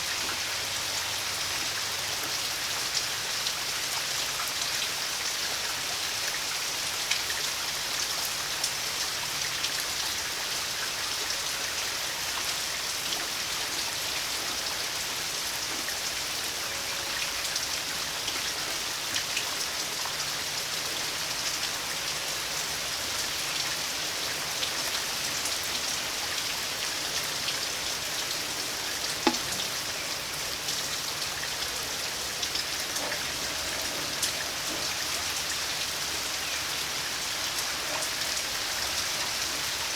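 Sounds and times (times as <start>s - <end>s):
rain falling: 0.0s - 39.9s
raindrops tapping: 27.0s - 35.8s.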